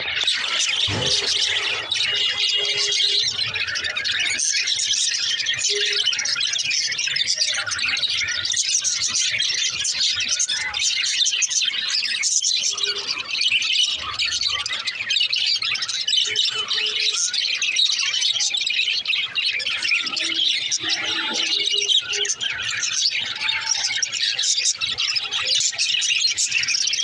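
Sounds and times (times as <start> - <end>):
budgerigars chattering: 0.0 - 27.0.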